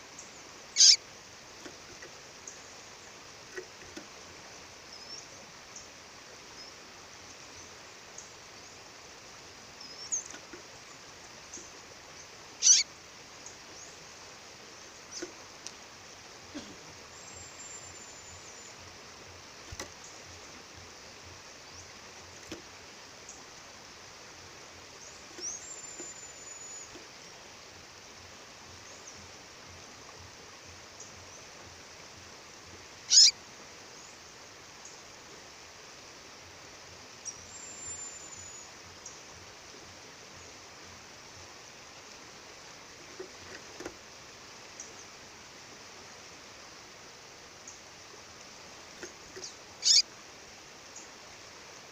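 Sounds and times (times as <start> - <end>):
bird whistled calls: 0.8 - 1.0, 12.6 - 12.9, 33.1 - 33.4, 49.8 - 50.0
sharp downward bird chirp: 0.8 - 1.0, 12.6 - 12.8, 33.1 - 33.3, 49.8 - 50.0.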